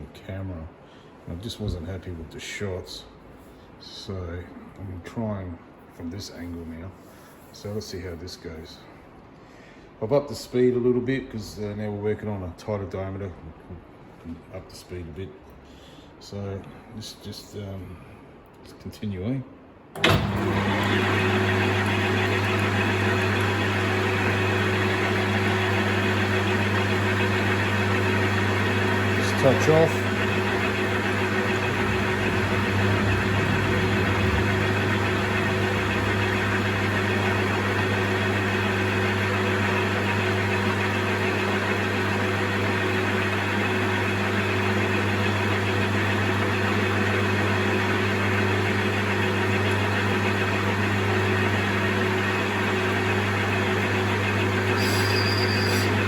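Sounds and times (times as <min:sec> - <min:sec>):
metal lathe running: 0:20.0 - 0:56.0
high whine: 0:29.4 - 0:38.2.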